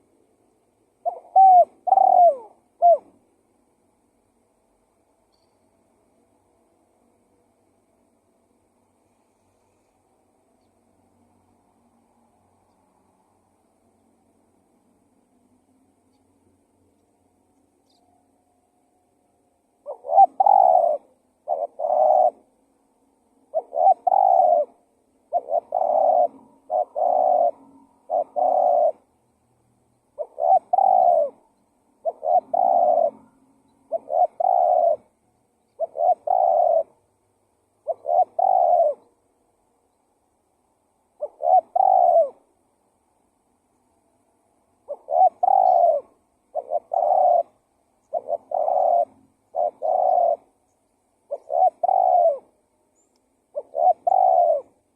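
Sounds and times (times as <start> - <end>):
dove cooing: 1.0 - 3.2, 19.8 - 22.6, 23.4 - 29.1, 30.1 - 37.0, 37.8 - 39.1, 41.1 - 42.5, 44.8 - 50.6, 51.2 - 52.6, 53.5 - 54.9.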